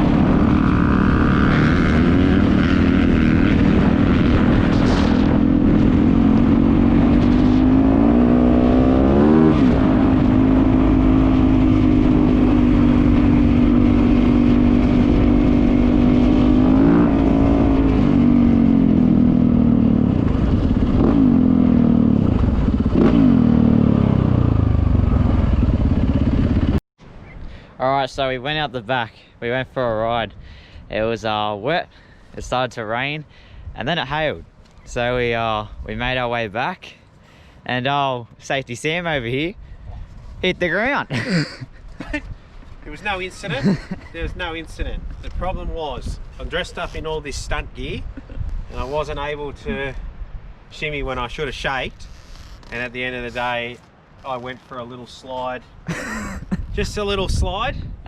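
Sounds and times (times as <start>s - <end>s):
dirt bike engine revving: 0.0s - 26.8s.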